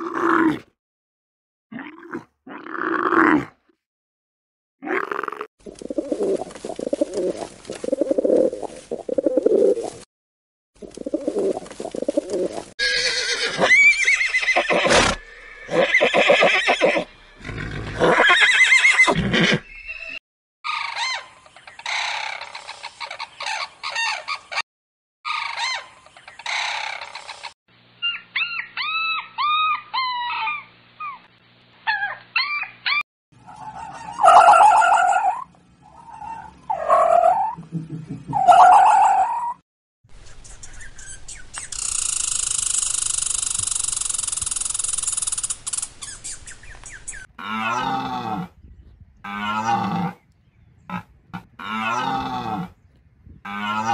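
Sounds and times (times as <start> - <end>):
horse neighing: 12.8 - 20.2, 50.9 - 52.8
chickens calling: 32.0 - 39.6.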